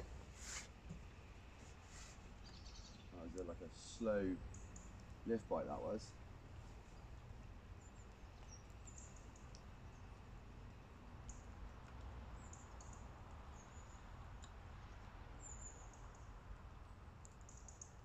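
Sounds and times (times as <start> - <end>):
faint bird chirps: 2.4 - 7.2, 7.8 - 10.2, 12.4 - 14.2, 14.8 - 16.3.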